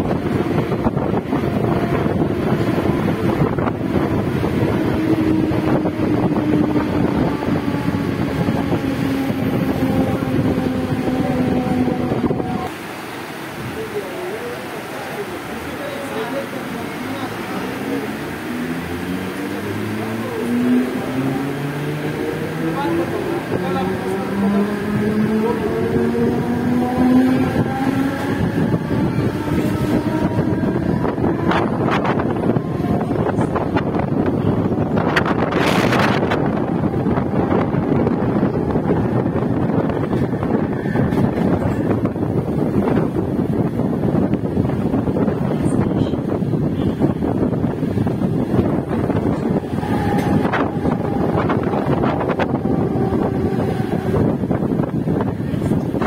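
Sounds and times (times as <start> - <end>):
rushing wind: 0.0 - 56.0
train wheels rumbling: 0.0 - 56.0
train motor whine: 0.1 - 12.7, 48.0 - 56.0
train motor hum falling in pitch: 48.6 - 54.8.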